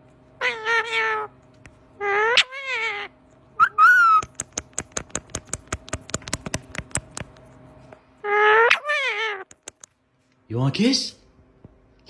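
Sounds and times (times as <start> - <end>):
parrot meow-like calls: 0.4 - 1.4, 2.0 - 4.3, 8.2 - 9.8
parrot rapid sharp clicks: 4.0 - 7.4, 9.4 - 10.0.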